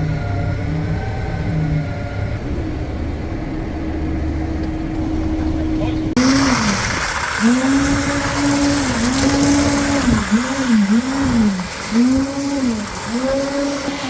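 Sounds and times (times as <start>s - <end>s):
small motor revving: 6.2s - 14.0s.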